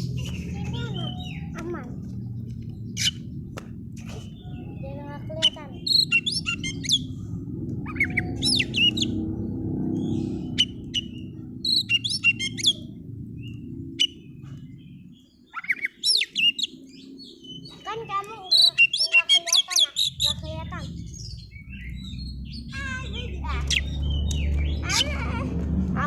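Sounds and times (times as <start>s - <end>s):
steady low hum: 0.0s - 19.0s, 19.8s - 26.0s
bird singing whistled phrases: 0.3s - 1.6s.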